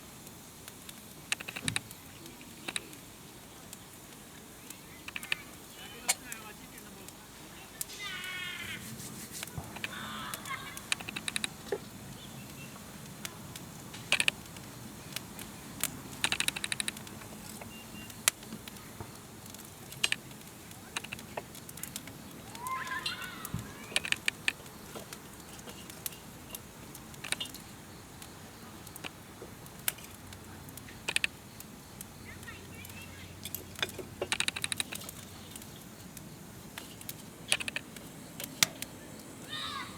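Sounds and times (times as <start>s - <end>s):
burning wood snapping and popping: 0.0s - 39.9s
campfire crackling: 0.0s - 39.9s.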